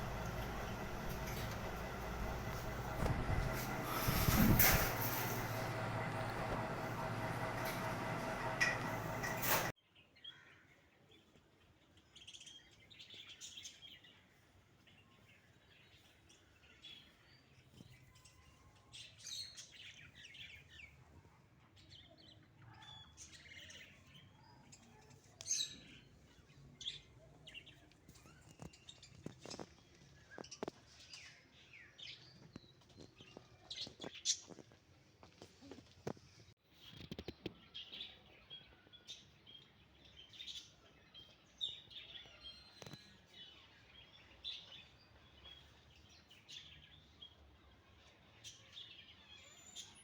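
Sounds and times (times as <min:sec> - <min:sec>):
birds chirping: 0:00.0 - 0:09.7.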